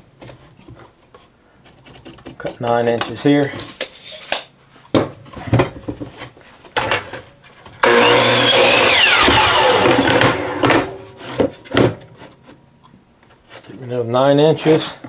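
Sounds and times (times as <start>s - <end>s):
electric saw cutting wood: 7.8s - 11.4s.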